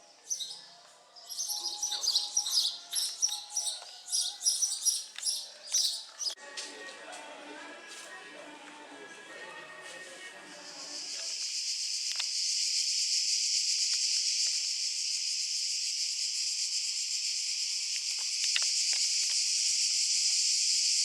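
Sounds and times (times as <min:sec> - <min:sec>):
cicadas buzzing: 0:01.2 - 0:06.4, 0:10.6 - 0:21.0.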